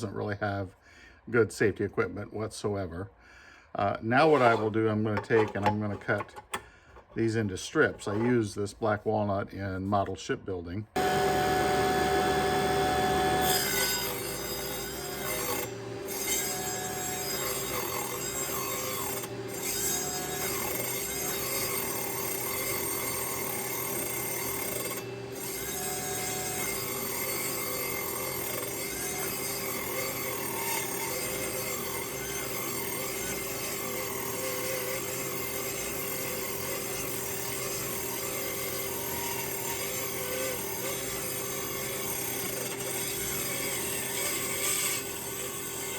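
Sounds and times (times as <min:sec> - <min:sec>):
saw blade cutting wood: 0:03.8 - 0:09.0, 0:11.0 - 0:45.9
table saw motor hum: 0:11.0 - 0:45.9.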